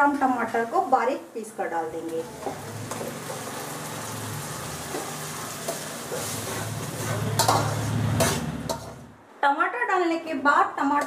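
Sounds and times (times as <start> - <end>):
sauce sizzling in hot oil: 0.2 - 9.1
spoon scraping pan: 2.1 - 9.1.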